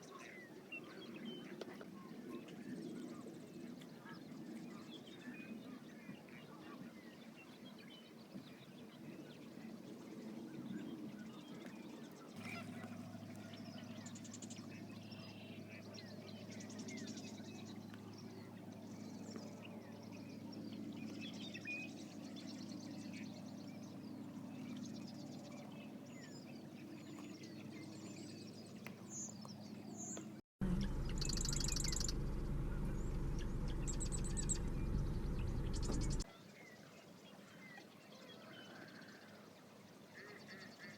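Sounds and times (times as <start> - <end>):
birds chirping and calling: 10.8 - 36.2
high trilling bird call: 30.6 - 36.2
low rumble: 30.6 - 36.2
low steady hum: 30.6 - 36.2.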